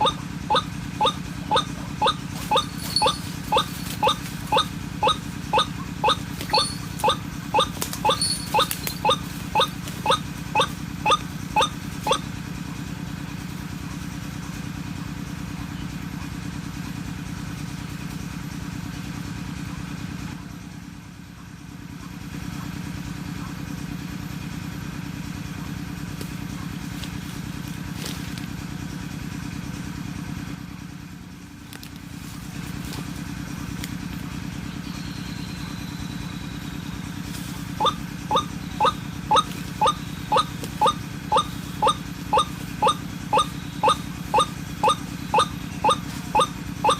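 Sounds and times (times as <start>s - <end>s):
low mechanical drone: 0.0s - 17.0s, 30.7s - 46.9s.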